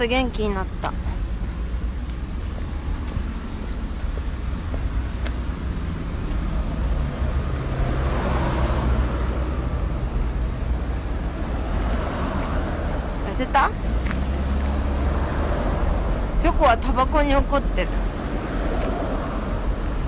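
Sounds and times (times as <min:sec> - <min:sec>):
constant low rumble: 0:00.0 - 0:08.0, 0:08.6 - 0:20.0
steady high insect trill: 0:00.0 - 0:20.0
vehicle passing: 0:04.8 - 0:20.0.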